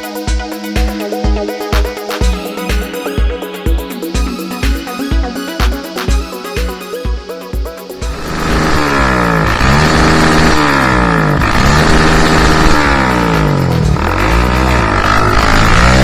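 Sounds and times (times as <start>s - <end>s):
dirt bike engine revving: 8.0s - 16.0s.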